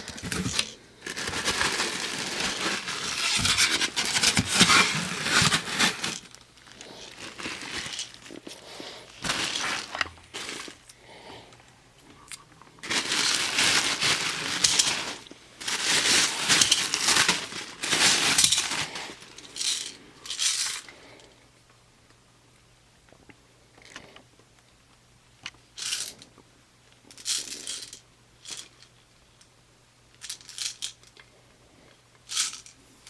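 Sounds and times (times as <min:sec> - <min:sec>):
plastic packaging crinkling: 0:00.0 - 0:10.9, 0:12.8 - 0:20.0.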